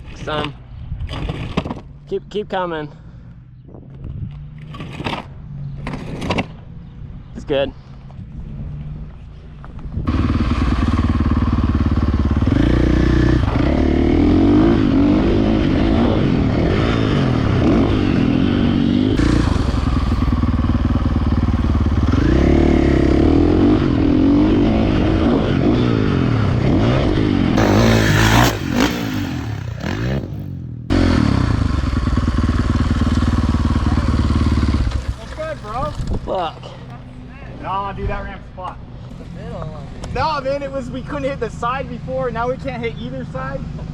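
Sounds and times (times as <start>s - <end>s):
dirt bike engine revving: 10.1s - 35.9s.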